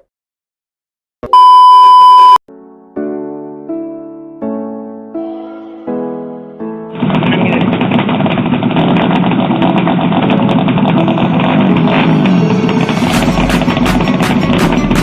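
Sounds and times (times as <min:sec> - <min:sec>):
piano notes: 0:02.5 - 0:07.1, 0:10.3 - 0:15.0
racing motorcycle engines revving: 0:07.6 - 0:14.7.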